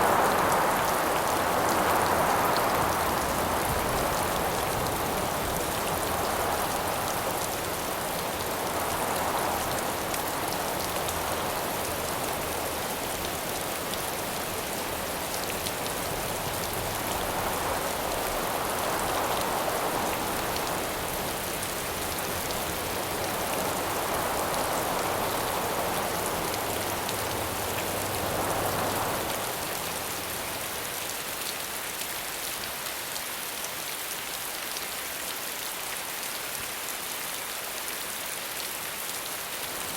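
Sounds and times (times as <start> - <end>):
wind gusts: 0.0 - 31.3
steady rain falling: 0.0 - 39.9.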